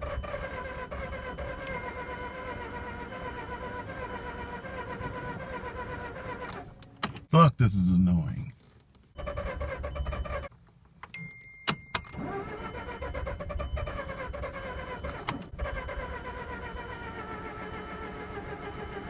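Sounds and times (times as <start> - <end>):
engine cranking on starter: 0.0 - 6.8, 9.2 - 10.5, 12.0 - 19.0.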